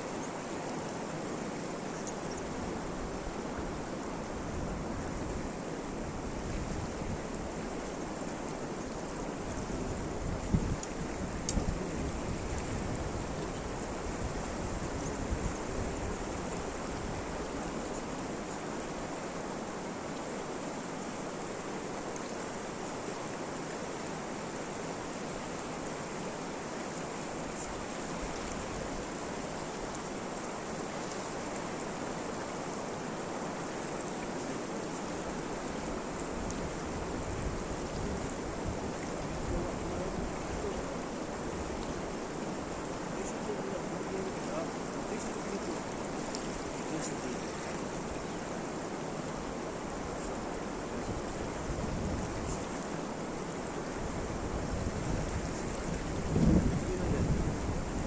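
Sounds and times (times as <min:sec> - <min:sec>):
steady rain falling: 0:00.0 - 0:58.0
wind buffeting microphone: 0:09.5 - 0:17.3, 0:49.9 - 0:52.8, 0:53.9 - 0:58.0.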